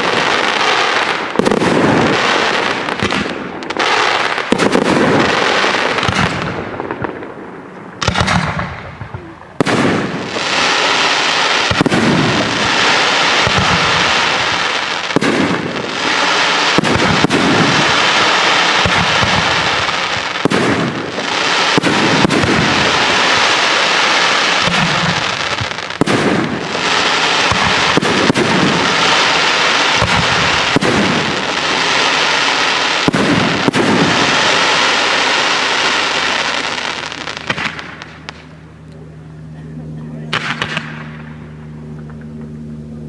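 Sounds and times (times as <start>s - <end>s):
firework shells bursting and crackling: 0.0s - 38.6s, 40.3s - 42.4s
firework sharp bang: 4.5s - 7.3s, 8.0s - 10.3s, 11.6s - 12.8s, 13.4s - 15.7s, 16.7s - 20.9s, 21.7s - 23.5s, 24.6s - 26.7s, 27.4s - 38.5s.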